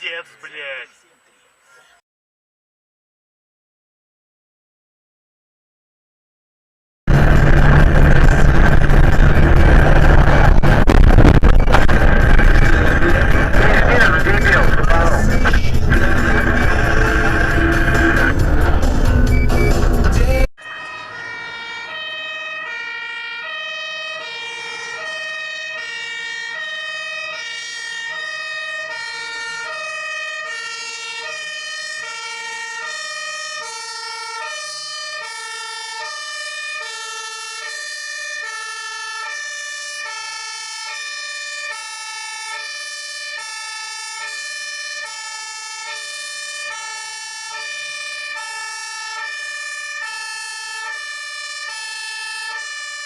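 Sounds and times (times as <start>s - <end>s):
two-tone emergency siren: 7.1s - 19.9s, 20.5s - 53.0s
steady high tone: 7.1s - 22.1s.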